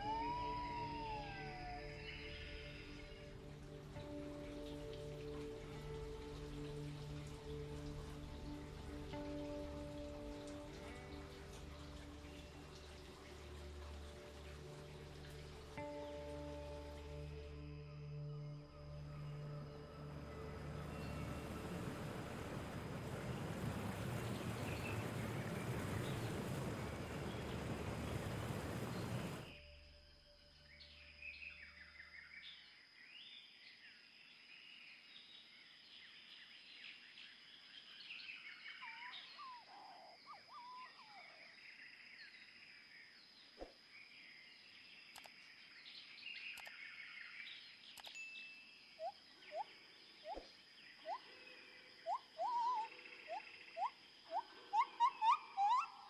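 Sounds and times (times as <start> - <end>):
bird calling in rising notes: 0.0 - 3.4, 20.0 - 29.6, 38.7 - 41.5, 52.0 - 56.0
high-pitched whine: 0.0 - 3.4
faint birdsong: 0.0 - 56.0
soft clicks: 45.1 - 45.4, 46.5 - 46.8, 47.9 - 48.2.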